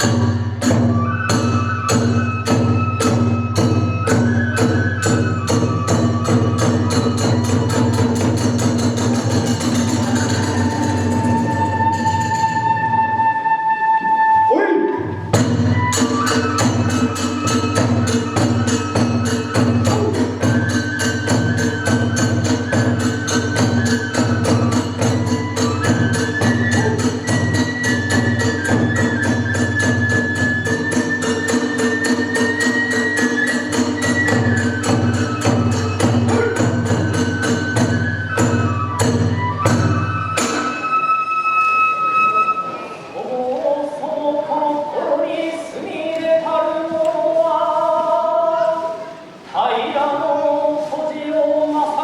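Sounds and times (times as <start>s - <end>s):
drums beating: 0.0s - 13.3s, 13.9s - 41.0s
flute melody: 0.0s - 44.7s.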